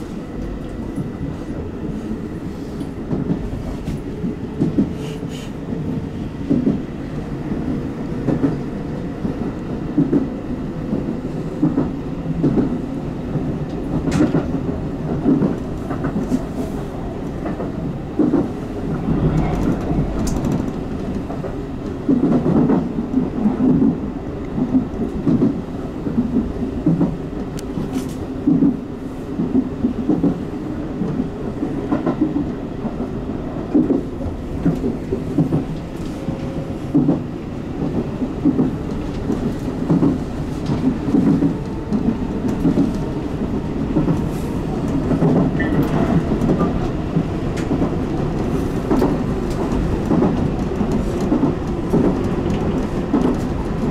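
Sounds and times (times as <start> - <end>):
train running gear rumble: 0.0 - 53.9.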